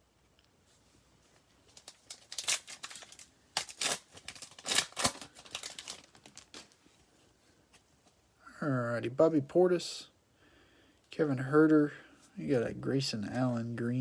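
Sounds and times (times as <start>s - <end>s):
plastic wrapper tearing and crinkling: 1.6s - 6.8s.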